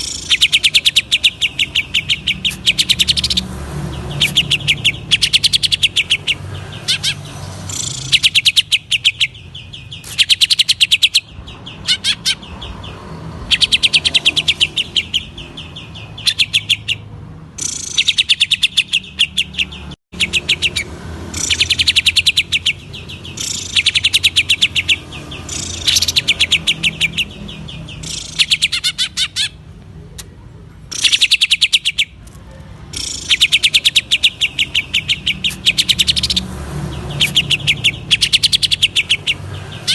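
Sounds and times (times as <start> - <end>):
bird rattling clicking song: 0.0 - 12.8, 13.4 - 39.9.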